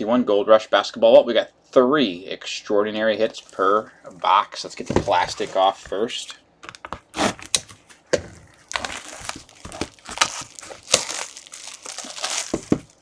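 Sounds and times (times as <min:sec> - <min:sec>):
plastic shrink-wrap tearing: 0:06.7 - 0:13.0.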